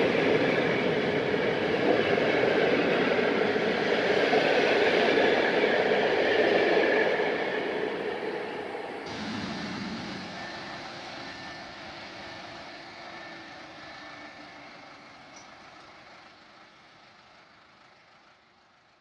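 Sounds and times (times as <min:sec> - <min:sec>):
passenger train running on rails: 0:00.0 - 0:19.0.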